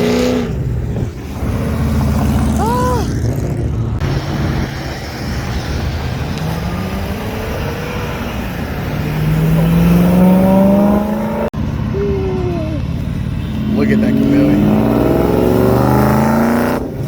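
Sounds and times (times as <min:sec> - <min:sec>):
car engine accelerating past: 0:06.1 - 0:11.5.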